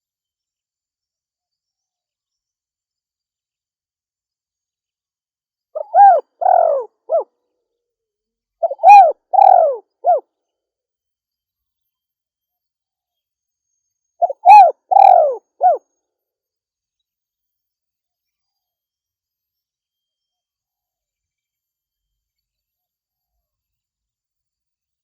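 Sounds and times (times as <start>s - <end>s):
dove cooing: 5.8s - 7.2s, 8.6s - 10.2s, 14.2s - 15.8s.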